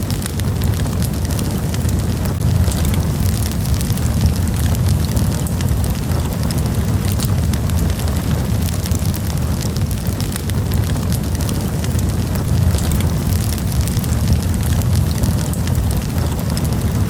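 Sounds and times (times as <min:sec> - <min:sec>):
low roar of flames: 0:00.0 - 0:17.0
wood crackling and popping: 0:00.0 - 0:17.0.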